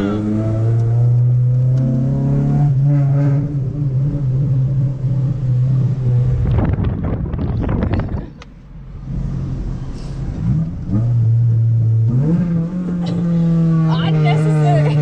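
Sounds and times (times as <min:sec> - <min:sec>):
car engine droning: 0:00.0 - 0:15.0
exhaust pops and crackles: 0:06.3 - 0:08.6.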